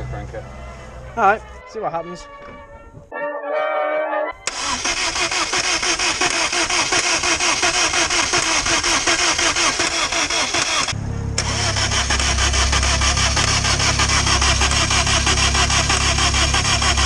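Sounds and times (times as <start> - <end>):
starter motor cranking engine: 4.4 - 17.0
deep steady mechanical sound: 7.6 - 17.0.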